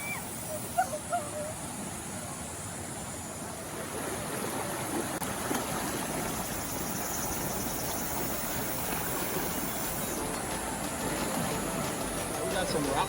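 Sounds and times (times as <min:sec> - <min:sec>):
water rushing over rocks: 0:03.7 - 0:13.0.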